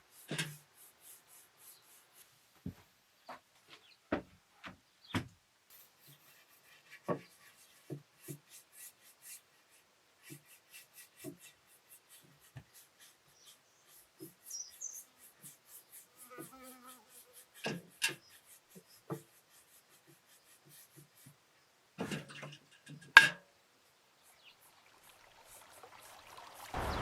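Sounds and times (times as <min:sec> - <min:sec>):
paintbrush brushing on wood: 0:00.0 - 0:02.9, 0:05.7 - 0:21.4.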